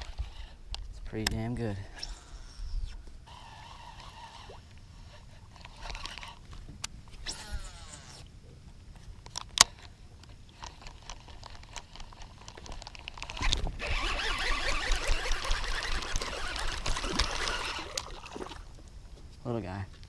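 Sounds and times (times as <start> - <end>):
fish splashing in water: 13.8 - 18.7.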